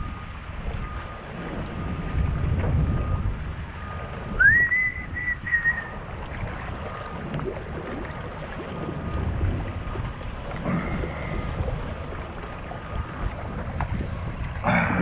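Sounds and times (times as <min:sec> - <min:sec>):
wind buffeting microphone: 0:00.0 - 0:15.0
high whistle-like squeal: 0:04.4 - 0:06.0.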